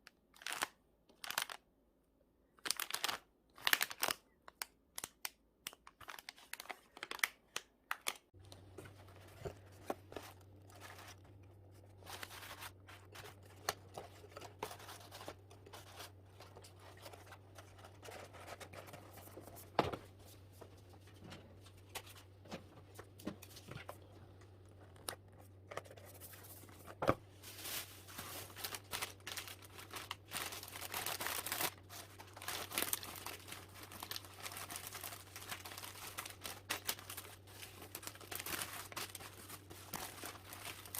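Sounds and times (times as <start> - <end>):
packaging crinkling and tearing: 0.4 - 1.6, 2.6 - 4.2, 5.0 - 19.2, 27.4 - 40.9
low steady hum: 8.4 - 40.9.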